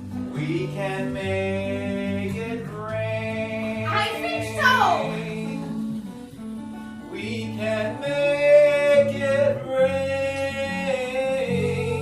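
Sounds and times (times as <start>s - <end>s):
person singing: 0.4s - 5.8s
live band music: 3.9s - 5.2s.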